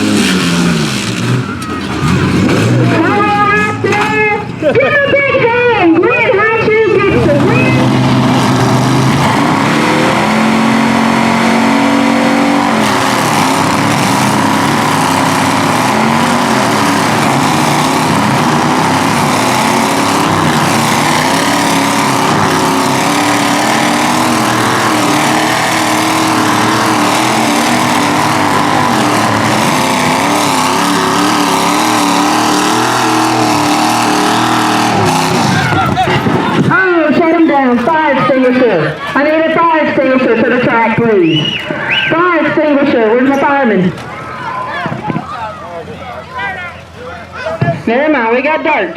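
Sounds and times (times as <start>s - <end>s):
truck engines revving hard: 0.0s - 48.9s
tyres spinning: 6.8s - 40.4s.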